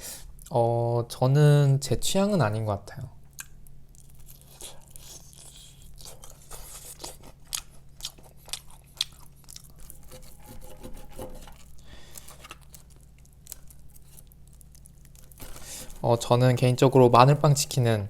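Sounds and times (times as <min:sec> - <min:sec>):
chewing crunchy fried chicken: 0:03.3 - 0:16.2.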